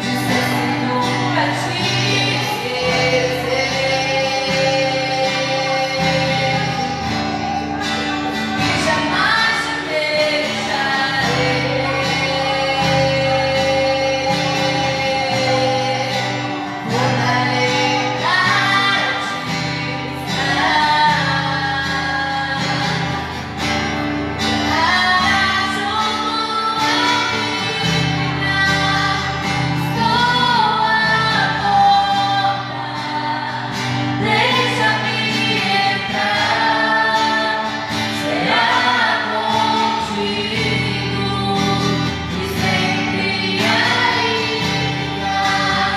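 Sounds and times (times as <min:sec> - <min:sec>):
woman singing worship song: 0:00.0 - 0:45.9.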